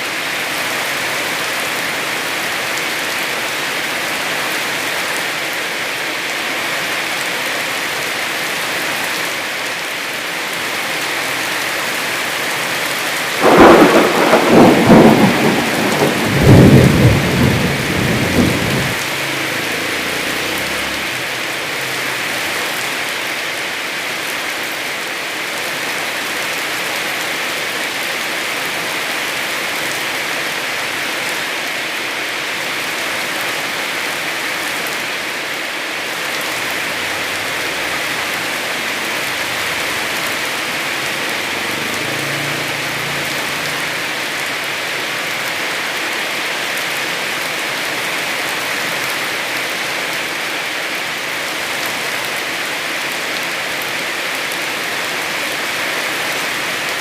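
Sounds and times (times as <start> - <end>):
heavy rain: 0.0 - 57.0
thunderclap cracking and rumbling: 13.4 - 21.1.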